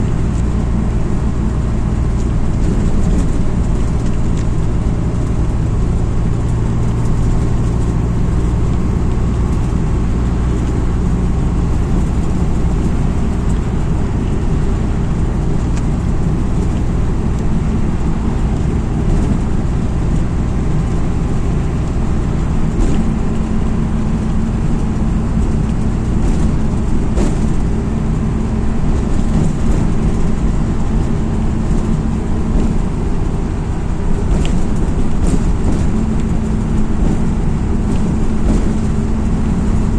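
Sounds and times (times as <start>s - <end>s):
bus engine and road hum: 0.0s - 39.9s
knocks and rattles: 21.7s - 39.9s.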